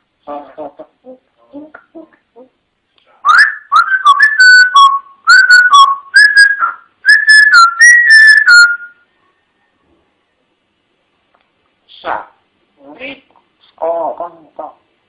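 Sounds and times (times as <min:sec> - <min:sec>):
parrot whistling a tune: 0:03.2 - 0:09.0.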